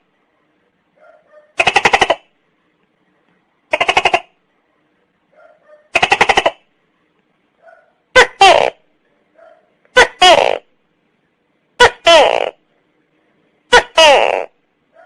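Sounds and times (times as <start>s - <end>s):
faint short croak: 1.6s - 2.3s, 3.7s - 4.4s.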